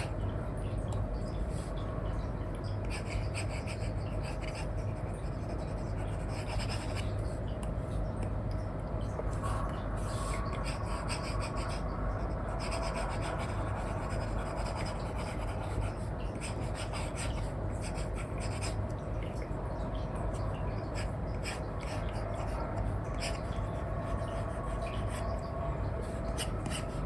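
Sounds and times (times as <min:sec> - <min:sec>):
steady low hum: 0:00.0 - 0:27.0
stylus scratching on screen: 0:02.9 - 0:07.3, 0:12.5 - 0:18.8, 0:20.9 - 0:25.4.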